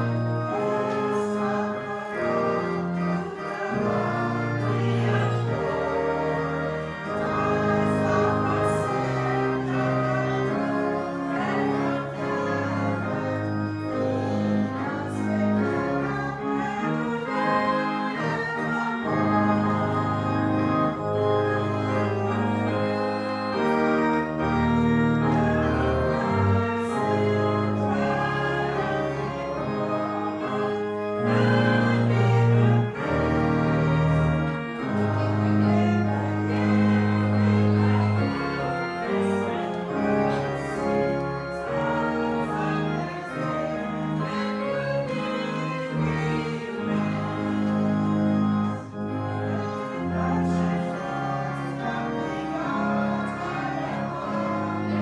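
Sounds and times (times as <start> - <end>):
organ march in sustained chords: 0.0 - 55.0.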